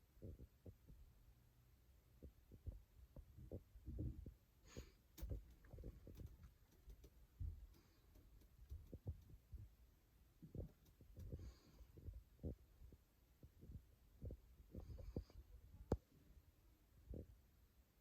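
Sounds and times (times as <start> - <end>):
handling thumps and knocks: 5.2 - 9.7.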